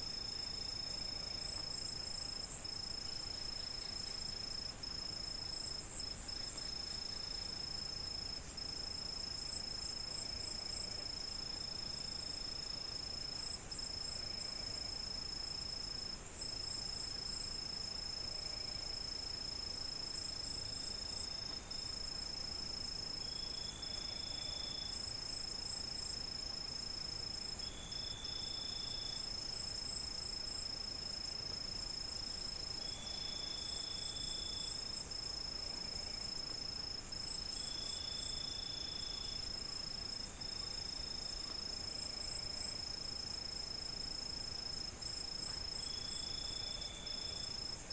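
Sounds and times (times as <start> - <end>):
crickets chirring chorus: 0.0 - 47.9
crickets trilling: 0.0 - 47.9.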